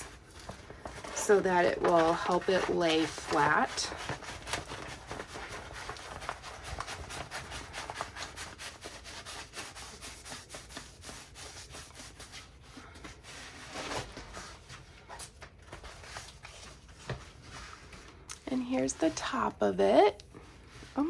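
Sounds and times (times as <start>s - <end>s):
canvas rustling and crinkling: 0.0s - 8.6s.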